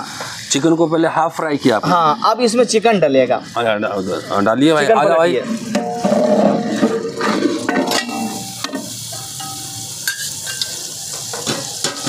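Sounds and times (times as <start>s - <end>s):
chicken sizzling in a pot: 0.0s - 12.0s
stirring knocks: 5.0s - 9.6s.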